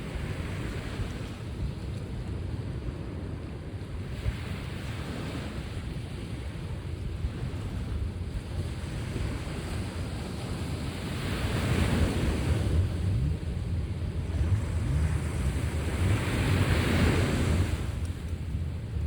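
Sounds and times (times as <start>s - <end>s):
wind rumbling on microphone: 0.0s - 19.0s
sea waves washing onto shore: 4.1s - 19.0s.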